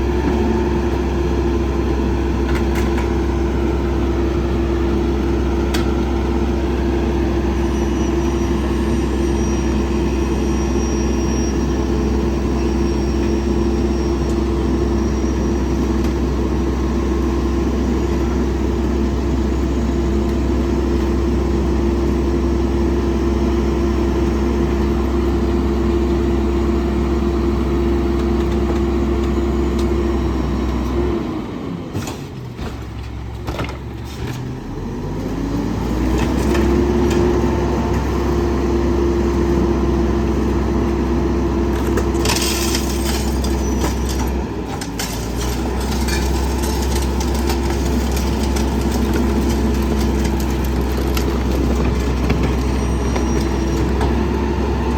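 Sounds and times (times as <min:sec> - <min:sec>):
garbage truck hydraulic whine: 0:00.0 - 0:54.9
trash cracking and snapping: 0:41.7 - 0:54.0.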